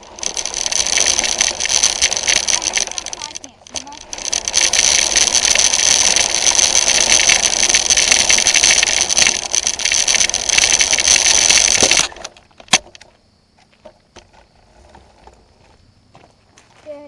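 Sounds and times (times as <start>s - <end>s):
rc car motor whining: 0.0s - 13.0s
sharp click: 11.5s - 13.1s.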